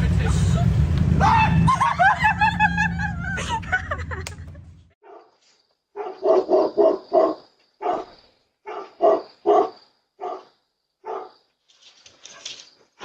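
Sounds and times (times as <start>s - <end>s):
dog barking: 5.0s - 11.4s.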